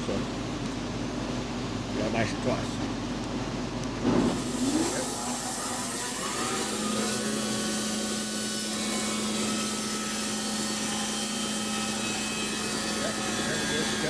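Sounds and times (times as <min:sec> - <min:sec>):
band sawmill humming: 0:03.4 - 0:14.0.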